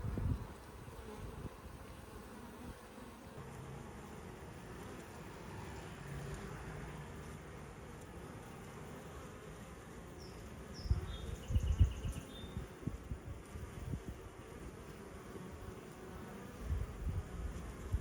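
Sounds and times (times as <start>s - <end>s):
honeybees buzzing: 0.0s - 18.0s
bird chirping and trilling: 10.2s - 12.6s.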